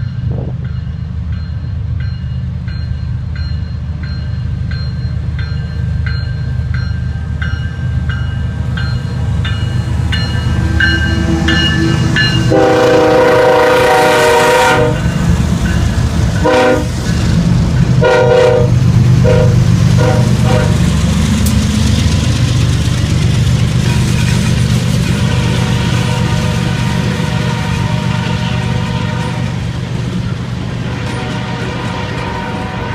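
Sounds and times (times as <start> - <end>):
locomotive engine rumble: 0.0 - 32.9
bell ringing: 0.7 - 12.6
train air horn blasts: 10.9 - 15.2, 16.4 - 17.0, 18.0 - 20.9, 25.2 - 29.6, 30.8 - 32.9.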